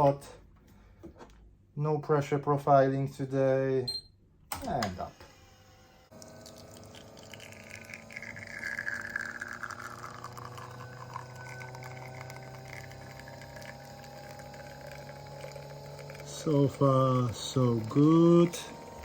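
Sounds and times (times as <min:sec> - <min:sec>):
espresso machine pump humming: 0:04.7 - 0:19.0
coffee pouring into cup: 0:06.1 - 0:19.0.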